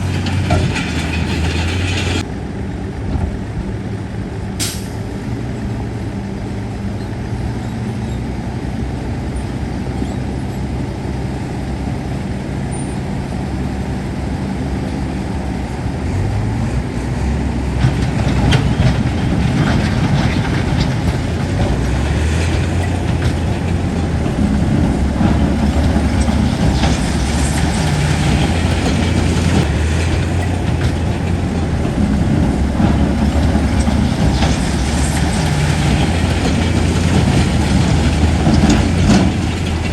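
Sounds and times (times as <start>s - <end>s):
metal and rock clanking: 0.0s - 2.2s, 17.8s - 39.9s
heavy diesel engine running: 0.0s - 39.9s.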